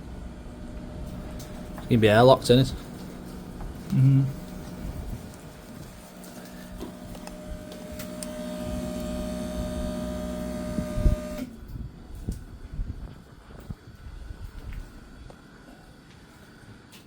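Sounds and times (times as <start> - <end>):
electric pump motor whining: 0.0 - 13.7.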